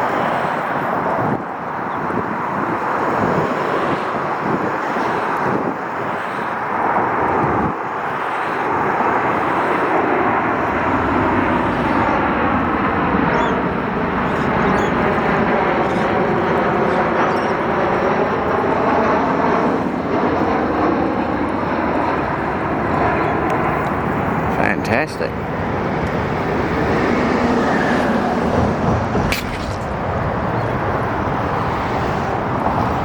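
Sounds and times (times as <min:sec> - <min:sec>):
jet engines roaring overhead: 0:00.0 - 0:33.0.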